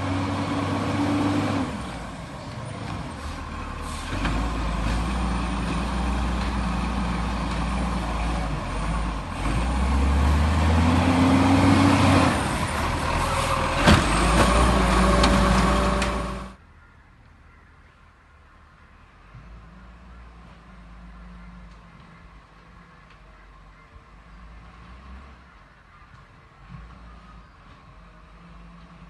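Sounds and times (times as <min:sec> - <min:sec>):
diesel truck engine revving: 0:00.0 - 0:16.6.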